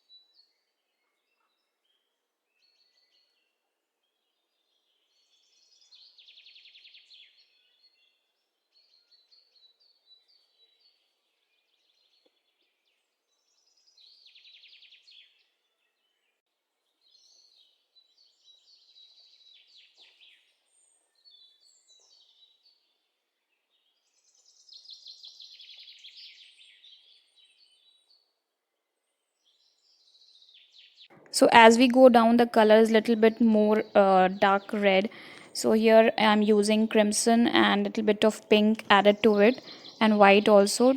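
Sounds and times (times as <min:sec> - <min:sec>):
songbird trilling: 0:31.5 - 0:40.9.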